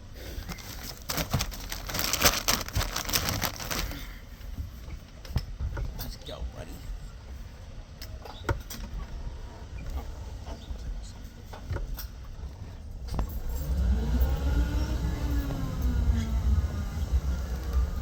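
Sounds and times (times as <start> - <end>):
road and engine rumble: 0.0 - 18.0
engine pitch rising and falling: 13.7 - 18.0.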